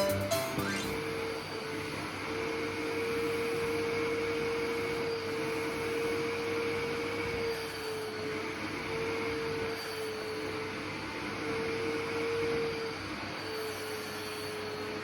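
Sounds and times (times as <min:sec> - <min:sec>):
vacuum cleaner motor whine: 0:00.7 - 0:15.0.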